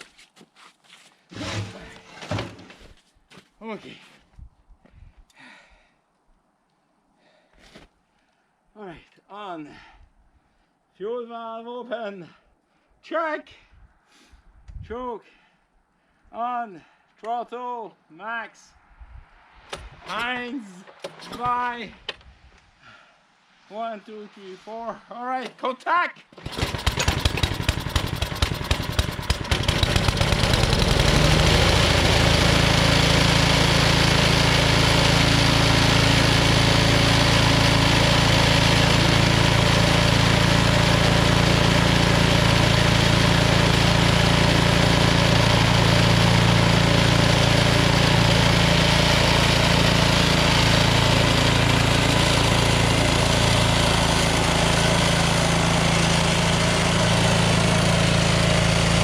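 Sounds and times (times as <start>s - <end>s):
snowblower engine starting and running: 1.3s - 3.0s, 19.7s - 22.3s, 26.3s - 59.0s.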